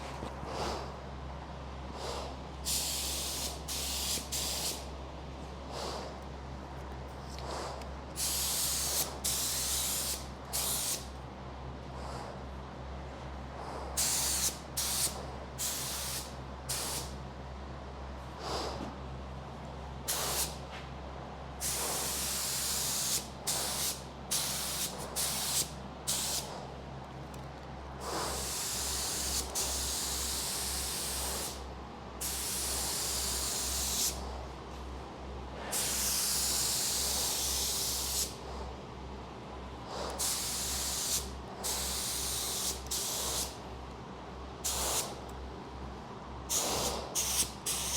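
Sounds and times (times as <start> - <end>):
spray gun hissing: 2.7 - 4.9, 8.2 - 11.0, 14.0 - 17.1, 21.6 - 26.5, 28.0 - 31.6, 32.2 - 34.2, 35.7 - 38.4, 40.2 - 43.6, 44.6 - 45.2, 46.5 - 47.9.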